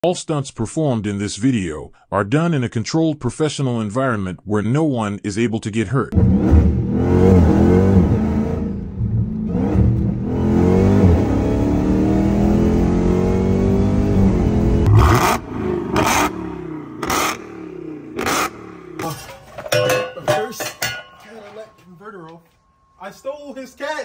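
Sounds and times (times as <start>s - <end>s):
car engine accelerating: 6.2s - 19.0s
sharp exhaust bursts: 14.9s - 19.0s.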